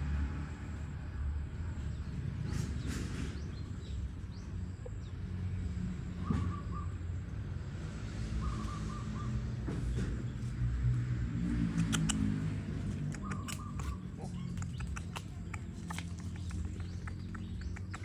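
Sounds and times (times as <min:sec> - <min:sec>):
animal chirping calls: 0:13.1 - 0:18.0.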